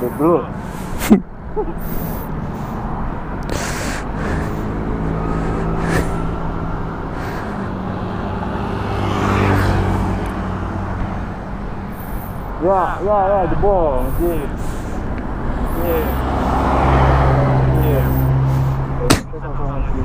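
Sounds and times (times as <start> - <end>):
vehicle engine passing: 0.0 - 20.0.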